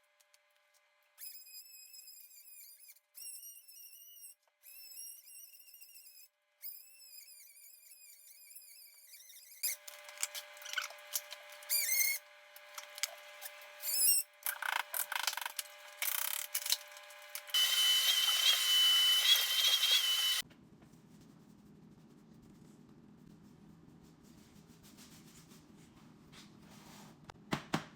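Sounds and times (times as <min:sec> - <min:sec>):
power tool whining: 0:14.9 - 0:20.4.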